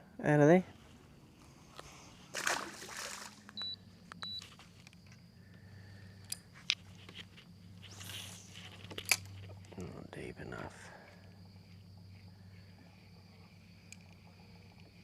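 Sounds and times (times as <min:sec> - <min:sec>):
low steady hum: 0:00.0 - 0:15.0
water splash: 0:02.3 - 0:03.6.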